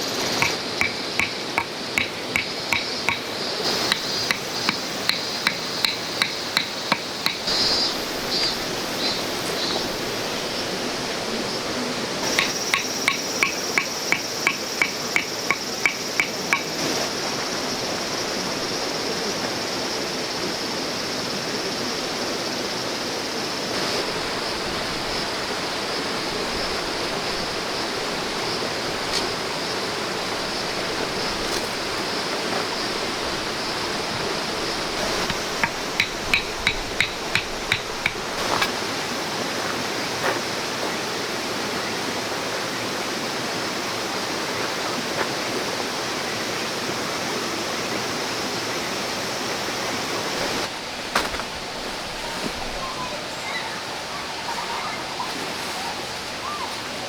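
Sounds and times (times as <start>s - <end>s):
flowing stream: 0.0s - 57.0s
hammer strikes: 0.4s - 7.5s, 12.4s - 16.7s, 35.2s - 38.3s.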